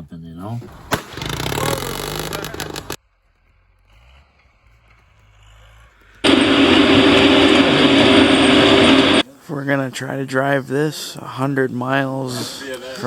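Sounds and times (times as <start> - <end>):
scraping noise: 1.2 - 3.0
diesel truck engine droning: 1.6 - 9.2.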